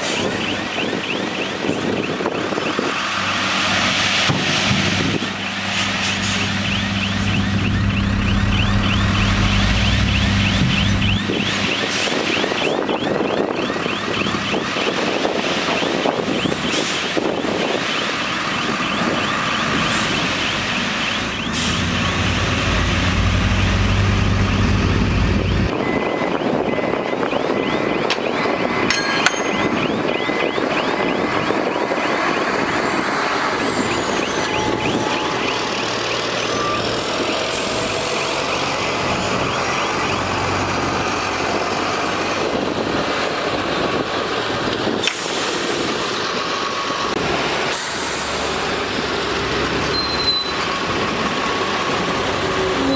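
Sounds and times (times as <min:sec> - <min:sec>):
reversing alarm beeping: 0:00.0 - 0:03.0, 0:05.0 - 0:44.1, 0:45.3 - 0:47.2, 0:49.7 - 0:52.9
heavy diesel engines rumbling: 0:00.0 - 0:52.9
machinery clattering: 0:28.1 - 0:30.4.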